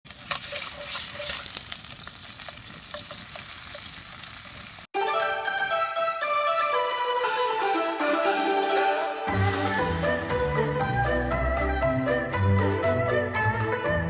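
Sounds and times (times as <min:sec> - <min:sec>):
food sizzling in a hot pan: 0:00.1 - 0:04.9
background music: 0:05.0 - 0:14.0.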